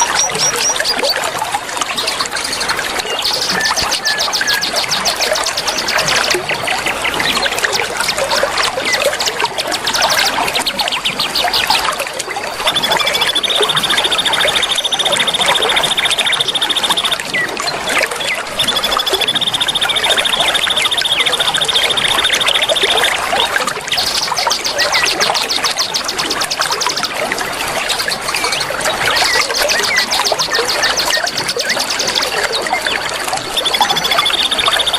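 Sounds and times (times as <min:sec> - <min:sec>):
running water: 0:00.0 - 0:34.9
songbirds chirping: 0:00.0 - 0:34.9.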